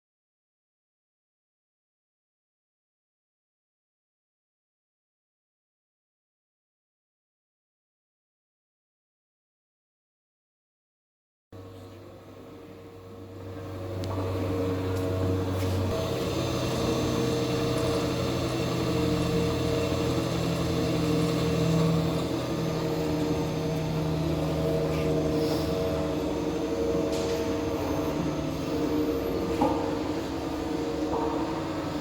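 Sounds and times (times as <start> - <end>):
motor hum and whine: 11.6 - 32.0.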